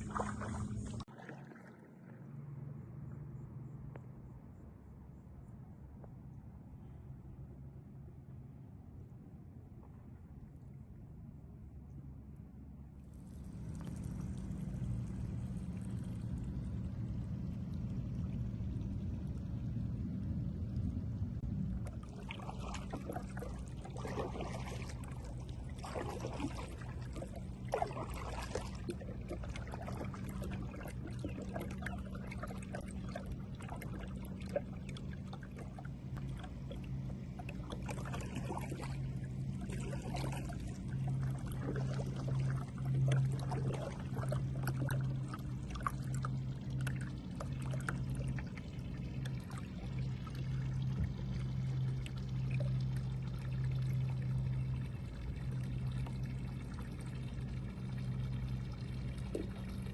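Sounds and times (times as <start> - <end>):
kayak paddle dipping into water: 0.0 - 2.7, 13.0 - 16.9, 21.4 - 59.9
steady low hum: 0.0 - 59.9
water dripping off paddle: 21.7 - 59.9.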